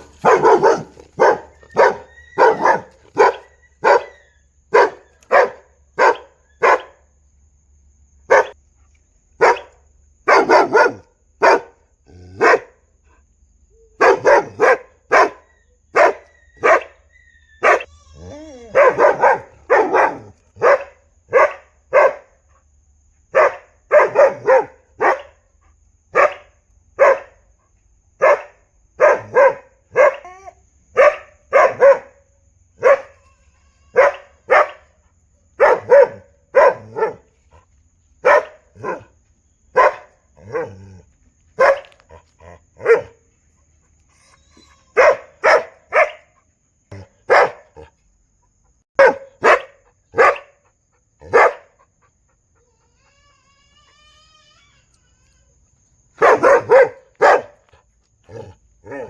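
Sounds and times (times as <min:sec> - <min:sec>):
dog barking: 0:00.0 - 0:07.0, 0:08.3 - 0:08.6, 0:09.4 - 0:12.8, 0:14.0 - 0:17.0, 0:17.6 - 0:17.9, 0:18.7 - 0:22.4, 0:23.3 - 0:25.4, 0:26.1 - 0:27.4, 0:28.2 - 0:33.2, 0:33.9 - 0:37.3, 0:38.2 - 0:41.0, 0:41.6 - 0:43.2, 0:44.9 - 0:47.9, 0:49.0 - 0:51.9, 0:56.2 - 0:59.0.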